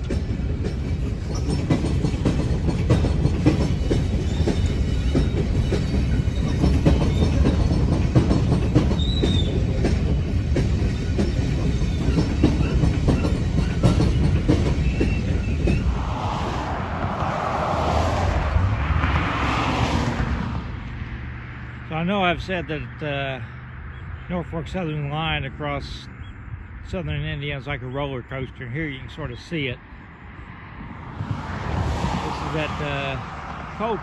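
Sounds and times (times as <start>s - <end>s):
wheels clicking over rail joints: 0.0s - 15.8s
freight train rumbling: 0.0s - 21.2s, 28.6s - 34.0s.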